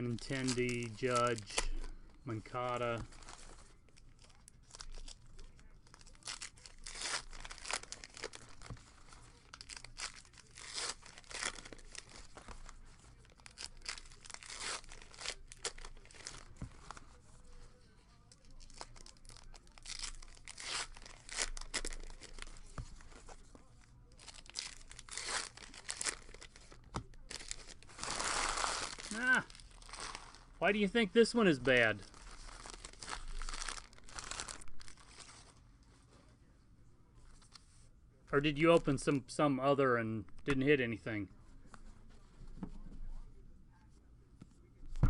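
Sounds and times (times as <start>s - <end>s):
wrappers tearing and crinkling: 0.0s - 1.8s, 2.5s - 17.2s, 18.3s - 35.5s.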